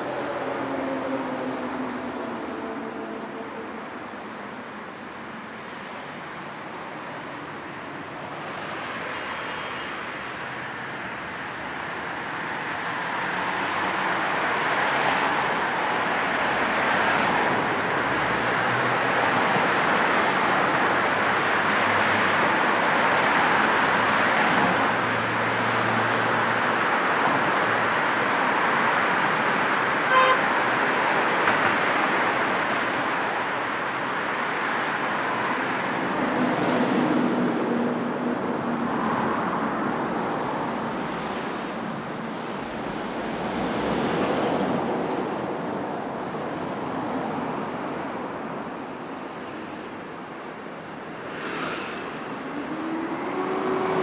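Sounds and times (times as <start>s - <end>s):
road traffic passing: 0.0s - 54.0s
car horn toot: 30.1s - 30.4s.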